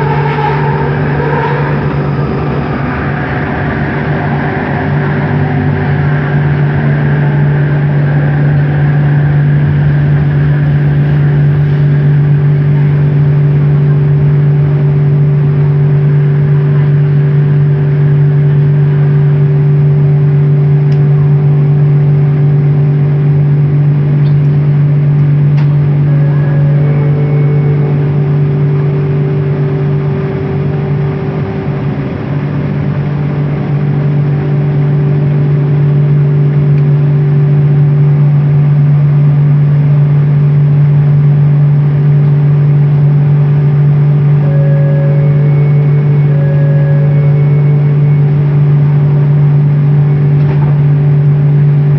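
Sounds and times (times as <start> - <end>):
faint short rising tones: 0.0 - 13.9
train motor hum: 0.0 - 51.9
train rumble: 0.0 - 51.9.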